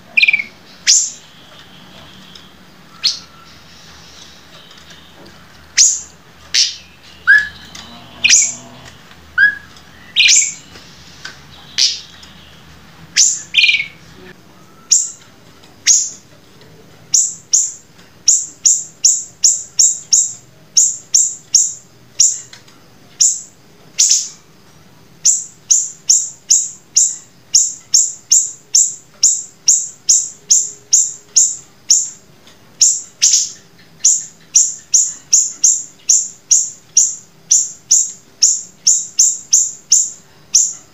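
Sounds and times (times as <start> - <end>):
songbird calling: 0.0 - 16.3, 17.1 - 22.6, 23.2 - 24.5, 25.2 - 40.9.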